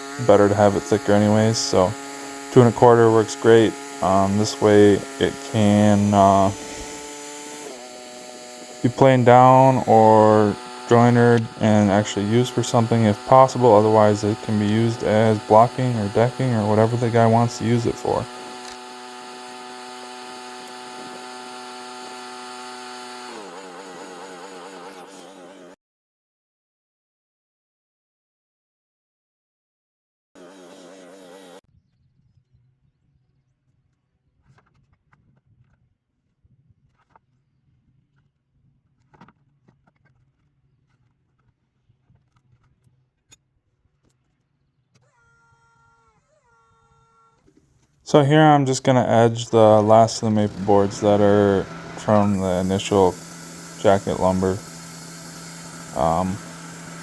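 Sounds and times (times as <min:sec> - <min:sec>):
saw blade cutting wood: 0:00.0 - 0:25.8, 0:30.4 - 0:31.6, 0:48.1 - 0:57.0
sawmill engine running: 0:00.0 - 0:25.8, 0:48.1 - 0:57.0.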